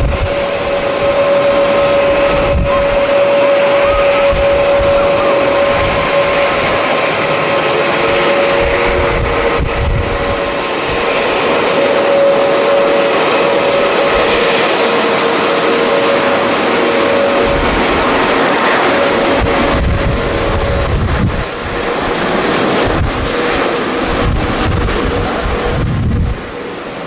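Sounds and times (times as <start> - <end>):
jet engines whining: 0.0 - 27.0
wind gusting on microphone: 0.0 - 27.0.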